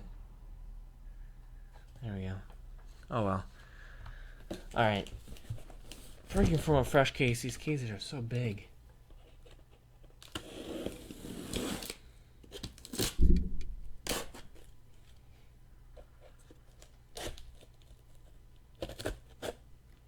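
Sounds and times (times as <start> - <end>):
boxes rustling: 4.4 - 7.7
packaging tearing: 12.7 - 13.2.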